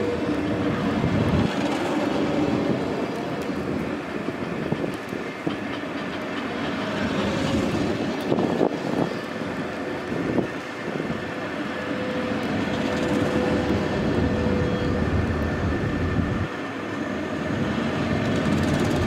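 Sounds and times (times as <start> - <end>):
train rumbling past: 0.0 - 19.0
wheels clattering over rail joints: 0.6 - 11.0.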